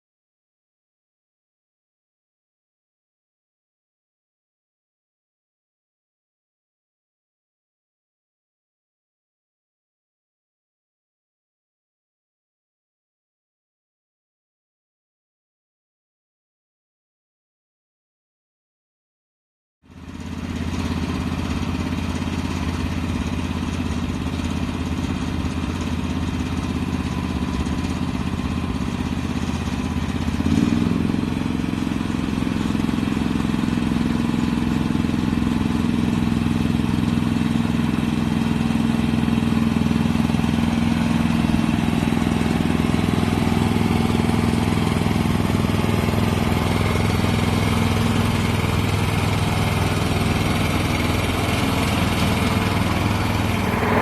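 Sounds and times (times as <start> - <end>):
small petrol engine running: 19.9 - 54.0.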